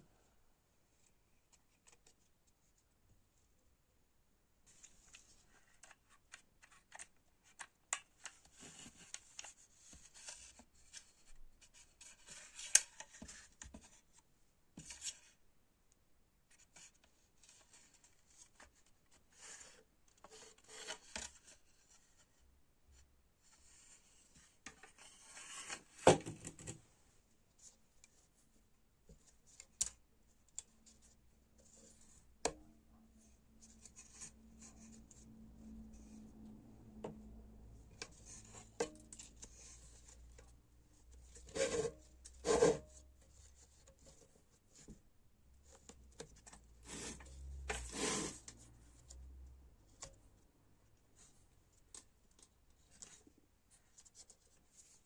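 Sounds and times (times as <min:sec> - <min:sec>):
rubbing and scraping: 0:41.0 - 0:44.4.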